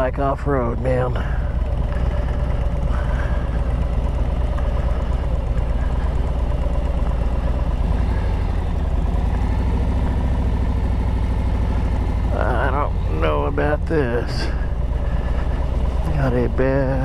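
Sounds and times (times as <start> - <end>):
motorcycle engine low rumble: 0.0 - 17.0.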